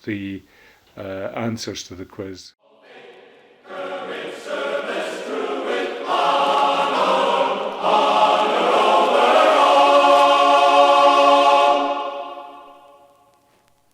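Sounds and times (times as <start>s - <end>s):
choir singing sustained chords: 2.6s - 13.4s.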